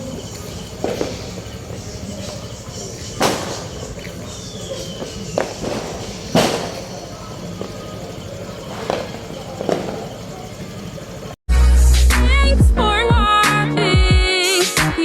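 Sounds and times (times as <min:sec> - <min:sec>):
motorcycle engine idling: 0:00.0 - 0:11.4
sharp engine bangs: 0:00.0 - 0:11.4.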